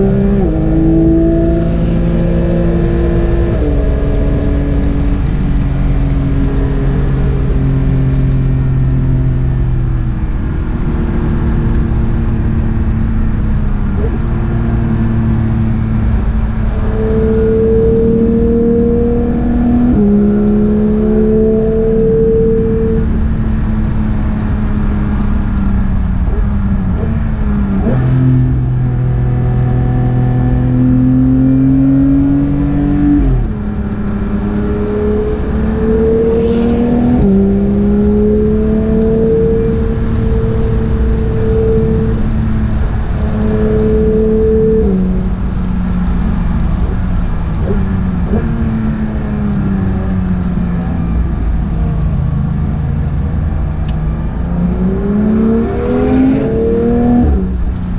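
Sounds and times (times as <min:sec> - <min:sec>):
car engine revving: 0:00.0 - 0:57.9.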